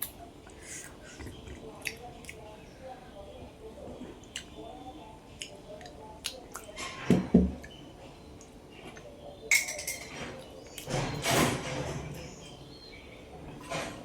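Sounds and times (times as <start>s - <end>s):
tableware clicking: 9.5s - 11.9s.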